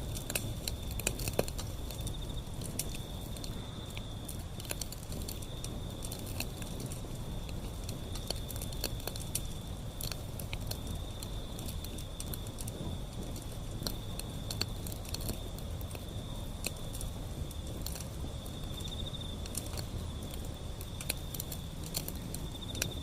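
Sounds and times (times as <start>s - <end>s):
low rumble of flames: 0.0s - 23.0s
wood fire crackling and popping: 0.0s - 23.0s.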